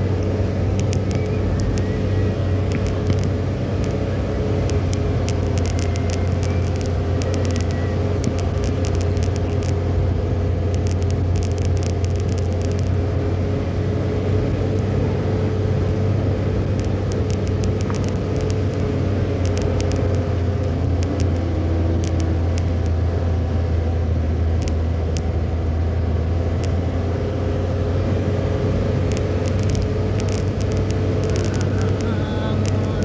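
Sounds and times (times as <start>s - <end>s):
car engine and road noise: 0.0s - 33.0s
quick light ticks: 0.2s - 9.8s, 10.6s - 13.0s, 16.6s - 23.8s, 29.0s - 33.0s.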